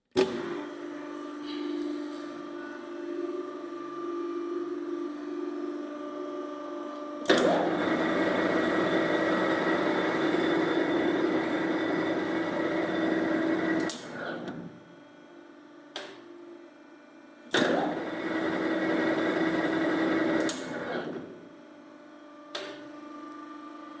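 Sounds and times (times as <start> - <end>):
lathe motor hum: 0.4 - 14.5, 17.7 - 21.4.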